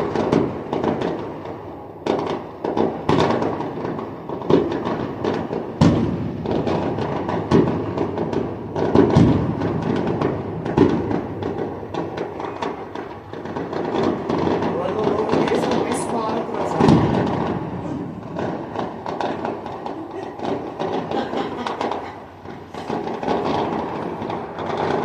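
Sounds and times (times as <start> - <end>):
firework booms: 0.0 - 25.0
fireworks crackling: 0.0 - 25.0.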